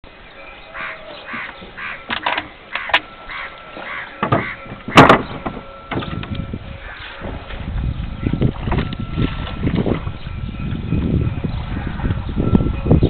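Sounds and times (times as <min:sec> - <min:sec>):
crows cawing: 0:00.7 - 0:02.1, 0:02.7 - 0:05.1
sharp wooden knocks: 0:04.2 - 0:06.3.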